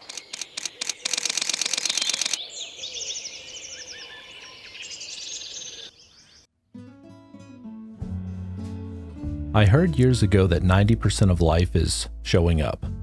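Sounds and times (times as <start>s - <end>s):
camera shutter clicks: 0.0s - 2.4s
small bird singing: 0.0s - 6.5s.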